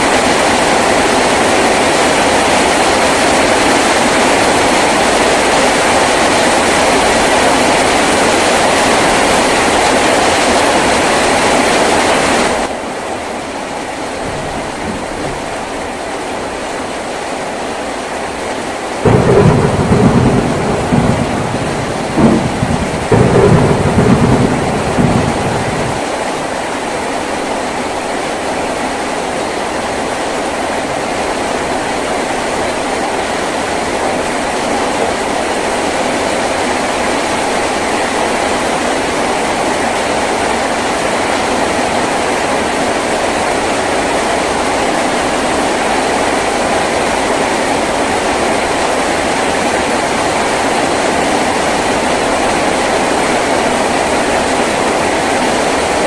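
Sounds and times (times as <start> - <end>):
heavy rain on a tin roof: 0.0 - 56.0
low rumble of thunder: 14.0 - 16.5, 19.0 - 26.2.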